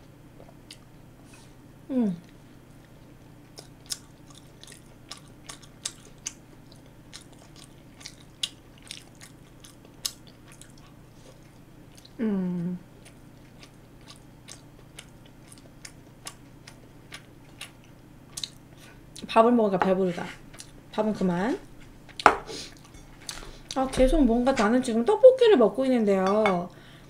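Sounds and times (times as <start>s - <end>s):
person chewing food: 0.4s - 0.9s, 2.2s - 12.2s, 12.9s - 19.3s, 20.5s - 20.8s, 22.0s - 23.8s
person humming: 1.9s - 2.3s, 12.2s - 12.8s.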